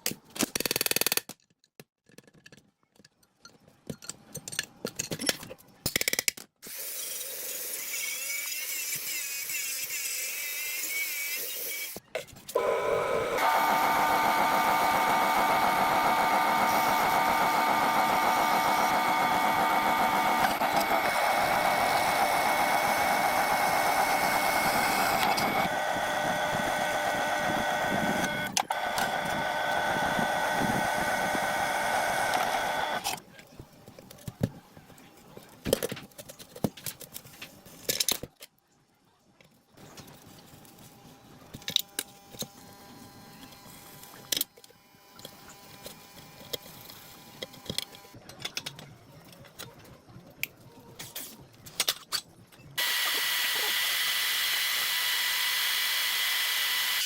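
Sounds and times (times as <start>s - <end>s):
clicks and knocks of tools: 0.0s - 6.5s
humming machine noise: 12.6s - 33.1s.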